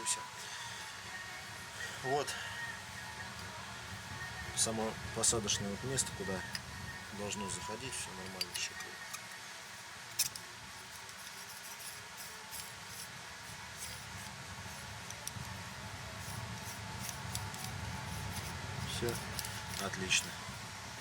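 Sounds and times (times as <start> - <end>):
low steady hum: 0.0 - 21.0
metal bushing clicks and clinks: 10.1 - 13.0.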